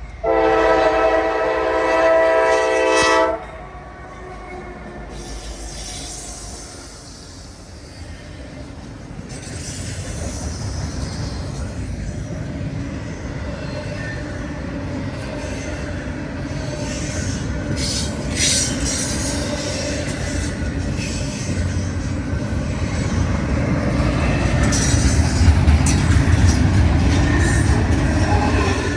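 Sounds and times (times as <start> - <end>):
freight train passing: 0.0 - 28.9.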